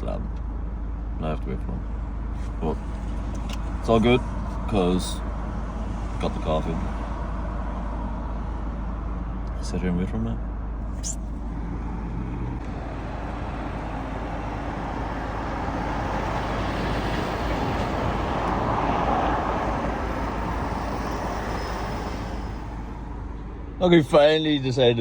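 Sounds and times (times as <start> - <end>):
low traffic rumble: 0.0 - 25.0
vehicle passing: 10.9 - 23.6.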